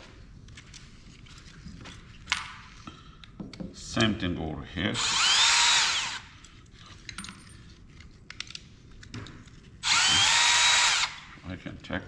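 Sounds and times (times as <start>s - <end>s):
power drill whining: 5.0s - 6.3s, 9.8s - 11.3s.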